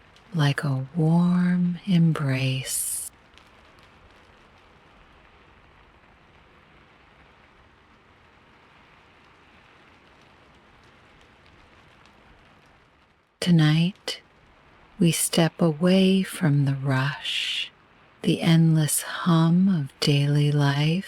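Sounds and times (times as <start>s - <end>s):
light rain hissing: 0.0s - 21.0s.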